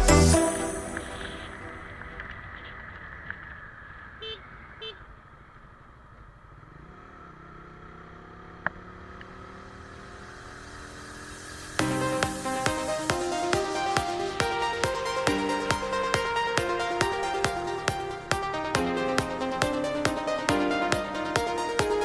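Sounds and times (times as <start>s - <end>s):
road noise rushing: 0.0s - 22.0s
horn beeps: 0.1s - 2.0s
motorcycle engine running: 6.2s - 13.7s.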